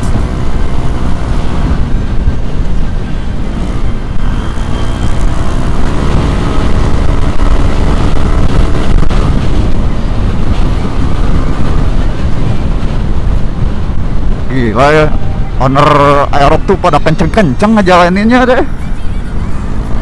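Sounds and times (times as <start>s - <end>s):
scooter engine accelerating: 0.0s - 14.4s
wind buffeting microphone: 0.0s - 20.0s.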